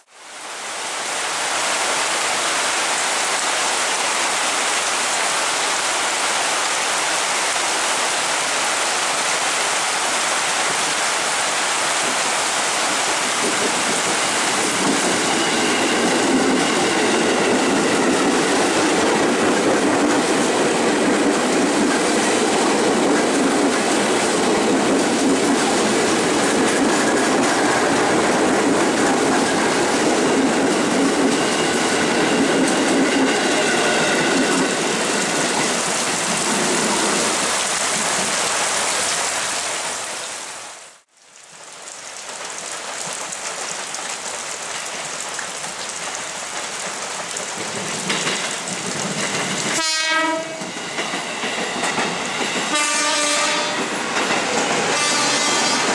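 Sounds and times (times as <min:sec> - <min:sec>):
heavy rain: 0:00.0 - 0:55.9
train wheels over rail joints: 0:10.6 - 0:38.3, 0:45.7 - 0:55.9
train horn: 0:49.8 - 0:50.8, 0:52.7 - 0:54.0, 0:54.8 - 0:55.9.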